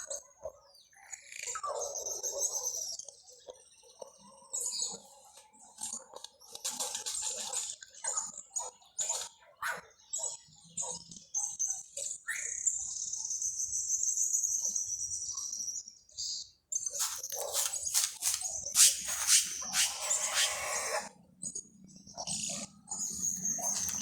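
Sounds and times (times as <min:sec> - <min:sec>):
songbirds chirping: 0:12.4 - 0:24.0
long high bird trill: 0:18.8 - 0:21.1.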